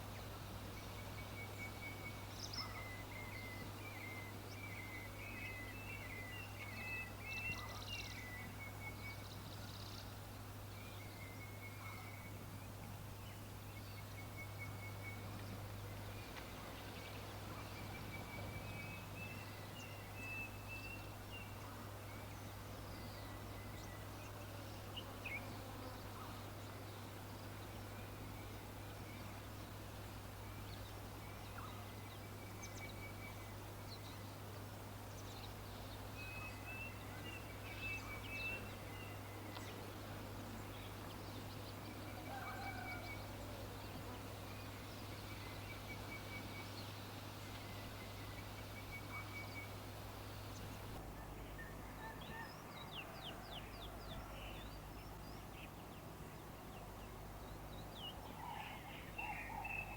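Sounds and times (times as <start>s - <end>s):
background hiss: 0.0s - 59.9s.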